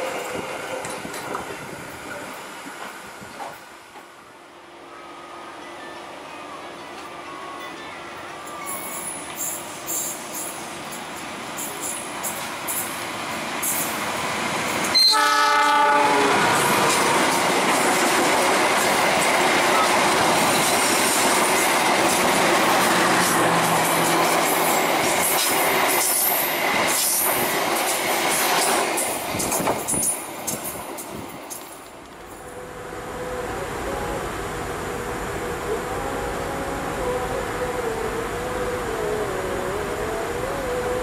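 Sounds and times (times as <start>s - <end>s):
train rushing past: 0.0s - 41.0s
train horn blast: 14.9s - 17.2s.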